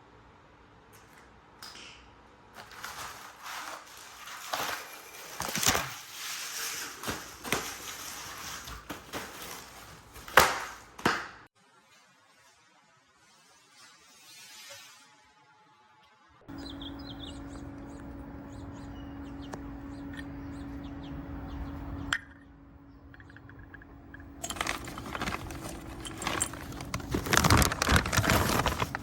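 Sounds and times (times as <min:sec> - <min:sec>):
hard objects knocking and clattering: 0:24.4 - 0:29.0.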